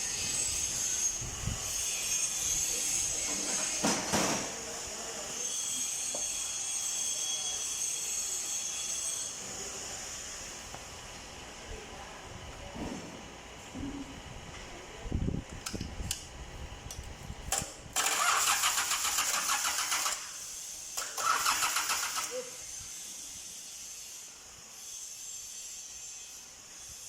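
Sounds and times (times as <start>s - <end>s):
diesel engine cranking: 17.5s - 20.4s, 21.0s - 22.4s.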